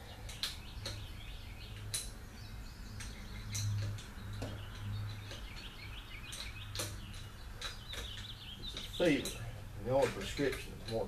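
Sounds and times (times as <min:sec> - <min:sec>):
birds chirping: 0:00.0 - 0:11.0
sharp clicks: 0:00.3 - 0:01.1, 0:03.0 - 0:11.0.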